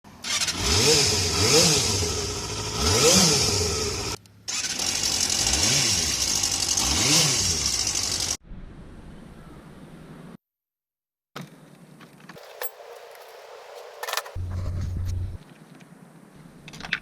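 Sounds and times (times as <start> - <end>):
motorcycle engine revving: 0.2 - 8.4.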